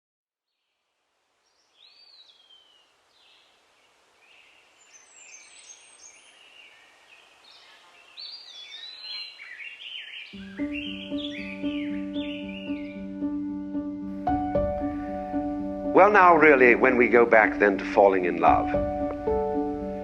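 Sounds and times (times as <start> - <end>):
steady outdoor hiss: 0.5 - 20.0
birds singing and chirping: 1.5 - 13.4.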